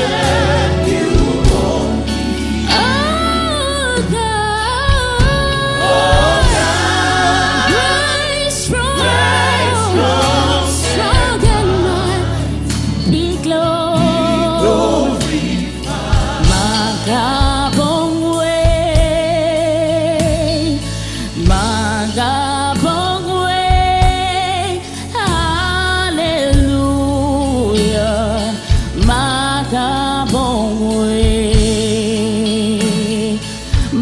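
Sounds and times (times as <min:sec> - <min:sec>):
drum strokes: 0:00.0 - 0:08.2, 0:09.0 - 0:13.4, 0:14.0 - 0:17.9
choir singing gospel song: 0:00.0 - 0:20.6
instrumental backing with bass: 0:00.0 - 0:34.0.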